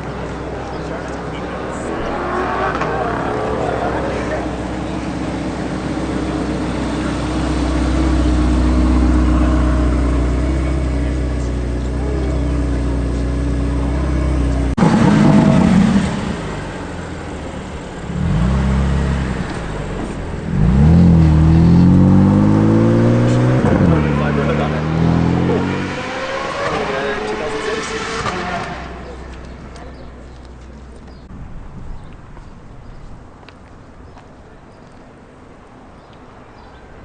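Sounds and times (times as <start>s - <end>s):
car engine droning: 0.0s - 31.3s
car engine revving and accelerating: 1.5s - 29.7s.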